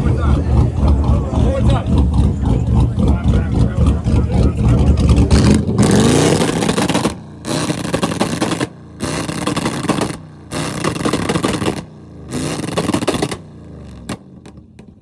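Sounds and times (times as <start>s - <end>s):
car engine revving: 0.0s - 15.0s
exhaust popping and crackling: 0.0s - 15.0s.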